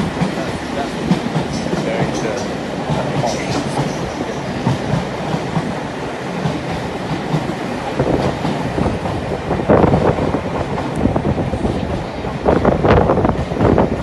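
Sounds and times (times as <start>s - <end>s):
train wheels clattering over rail joints: 0.0s - 11.2s.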